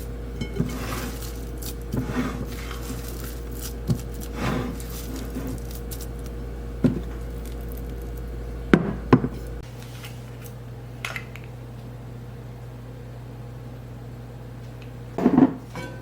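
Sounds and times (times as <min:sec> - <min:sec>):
low steady hum: 0:00.0 - 0:16.0
knocks on a kitchen counter: 0:08.7 - 0:09.4, 0:15.2 - 0:15.6.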